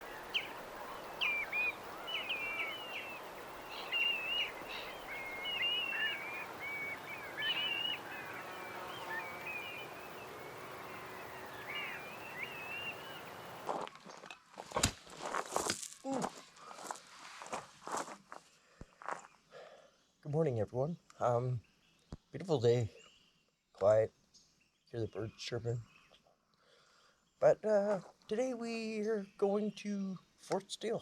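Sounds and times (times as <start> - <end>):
steady background hiss: 0.0 - 18.4, 27.2 - 31.0
songbirds chirping: 0.0 - 31.0.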